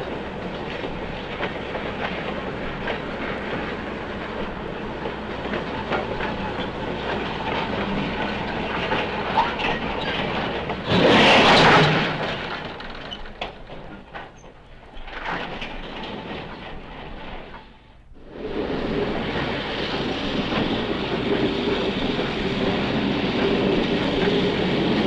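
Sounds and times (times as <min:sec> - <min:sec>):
steam locomotive clattering: 0:00.0 - 0:25.0
loud burst of noise: 0:10.8 - 0:13.2, 0:18.2 - 0:25.0.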